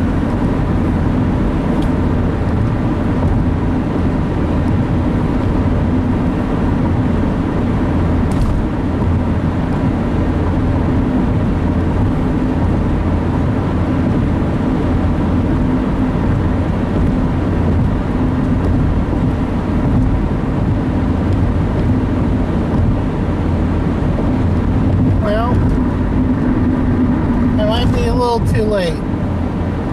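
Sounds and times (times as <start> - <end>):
car cabin road and engine noise: 0.0 - 29.9.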